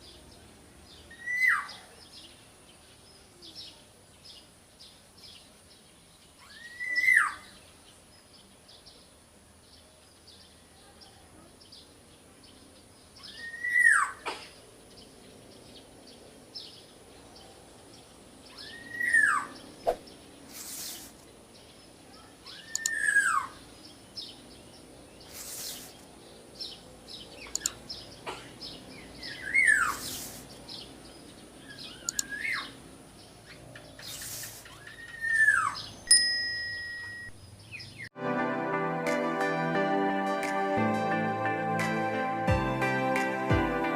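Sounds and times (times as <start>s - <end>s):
short hissing noises: 19.9s - 21.3s, 25.2s - 26.1s, 29.8s - 30.8s, 34.0s - 34.8s
bird nasal call: 25.2s - 26.0s, 29.3s - 30.5s
music: 38.2s - 43.9s.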